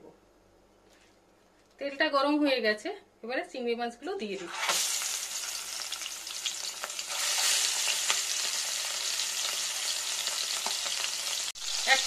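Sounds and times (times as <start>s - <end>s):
prawns sizzling in oil: 4.4s - 12.0s.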